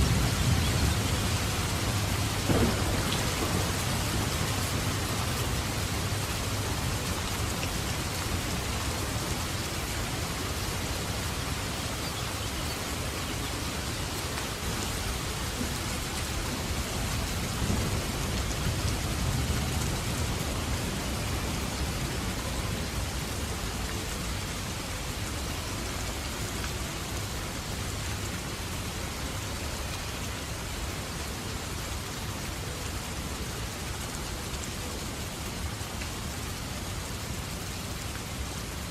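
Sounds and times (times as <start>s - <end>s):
thunder rumbling: 0.0s - 7.5s
steady rain falling: 0.0s - 38.9s.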